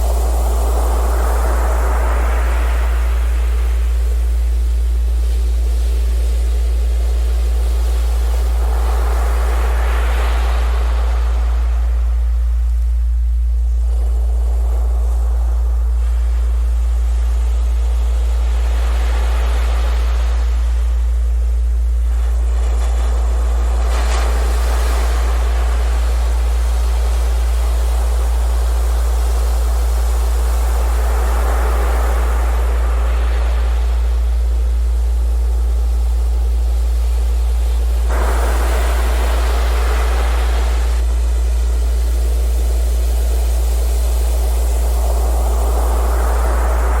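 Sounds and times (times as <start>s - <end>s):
sea surf washing: 0.0s - 4.2s, 7.6s - 12.8s, 22.0s - 36.1s, 37.9s - 47.0s.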